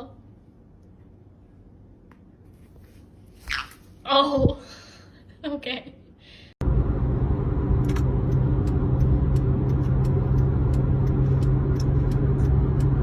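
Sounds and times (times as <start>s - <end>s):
low rumble with hum: 6.4s - 13.0s.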